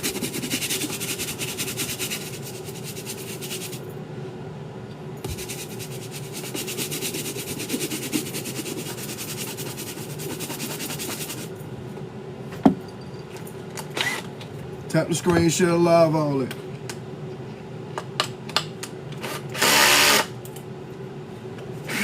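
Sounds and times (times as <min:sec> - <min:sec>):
brush scrubbing a sneaker: 0:00.0 - 0:03.8, 0:05.2 - 0:11.5.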